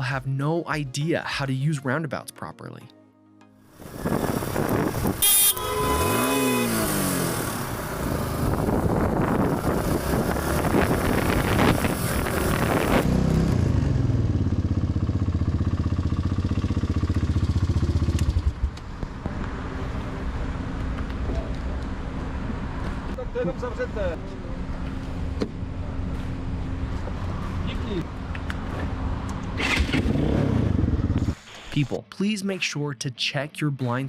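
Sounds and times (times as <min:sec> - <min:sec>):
wind rush: 0:03.8 - 0:05.3, 0:08.2 - 0:13.1
motorcycle engine: 0:03.8 - 0:23.2, 0:24.3 - 0:31.4.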